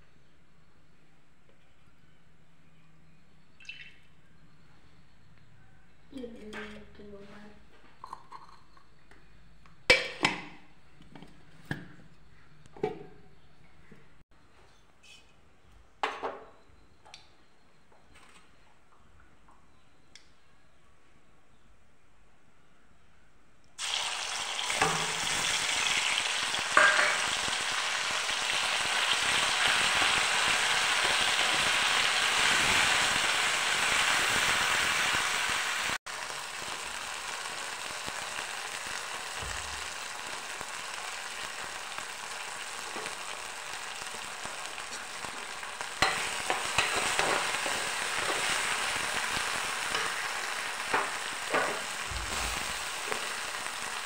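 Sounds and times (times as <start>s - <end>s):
paste sizzling in hot oil: 23.8s - 54.0s.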